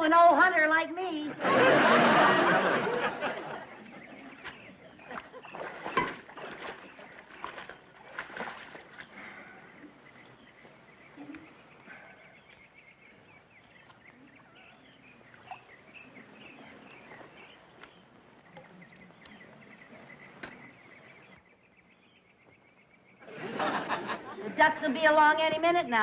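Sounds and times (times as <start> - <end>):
faint marsh ambience: 0.0 - 26.0
bird chirps: 3.3 - 23.3.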